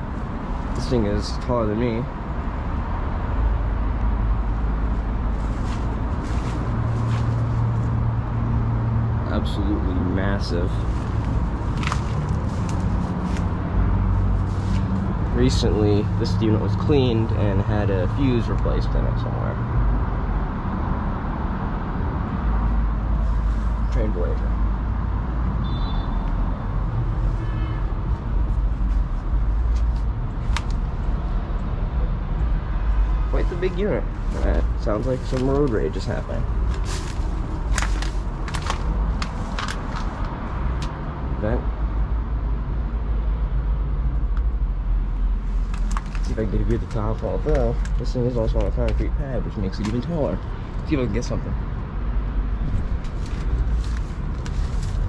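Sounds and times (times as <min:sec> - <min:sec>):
road traffic: 0:00.0 - 0:55.0
air conditioner rumbling: 0:33.0 - 0:41.6.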